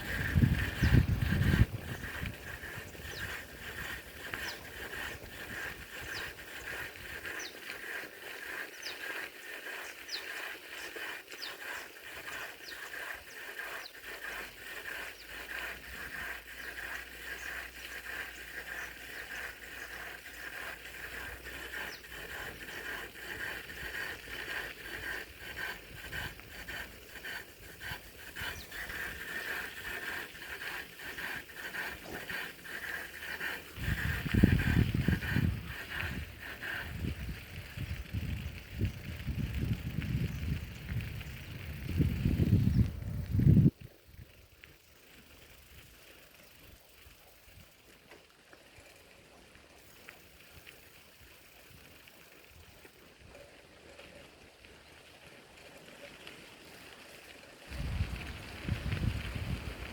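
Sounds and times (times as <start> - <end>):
rain pattering: 37.6 - 44.6, 53.8 - 59.9.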